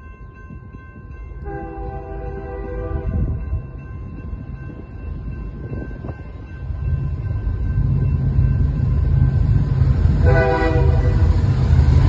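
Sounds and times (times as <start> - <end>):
train horn blast: 1.4 - 3.4, 10.2 - 11.4
locomotive rumble: 1.4 - 12.0.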